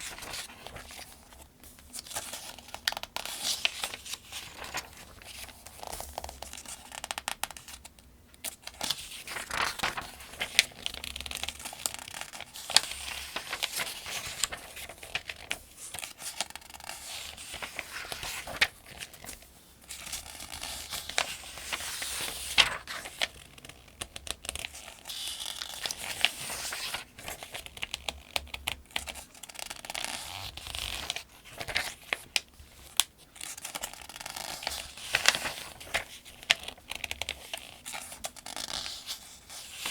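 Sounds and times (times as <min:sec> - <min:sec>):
pages being turned: 0:00.0 - 0:07.8, 0:08.6 - 0:23.4, 0:25.1 - 0:27.6, 0:29.6 - 0:39.9.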